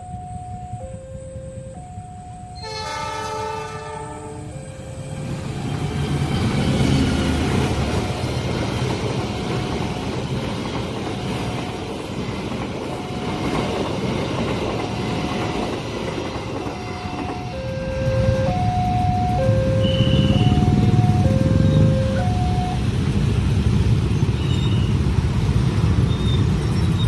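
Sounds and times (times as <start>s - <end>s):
crossing warning tone: 0.0s - 12.2s, 14.9s - 27.0s
train wheels clickety-clack: 5.4s - 27.0s.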